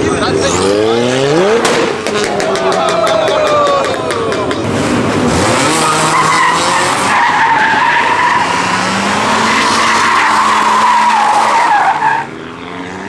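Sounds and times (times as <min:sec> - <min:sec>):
car engine running hard: 0:03.5 - 0:13.0
tyres squealing: 0:05.6 - 0:12.4.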